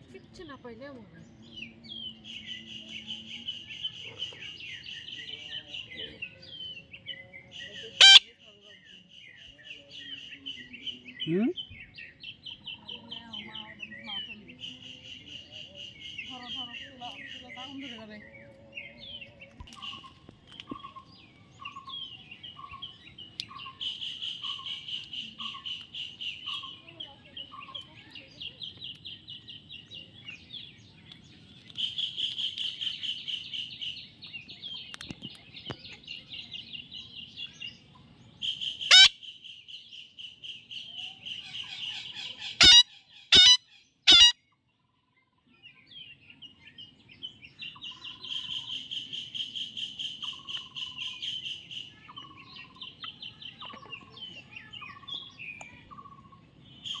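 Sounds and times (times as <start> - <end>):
baby parrot chirping: 8.0 - 8.2, 38.8 - 39.2, 41.7 - 44.4.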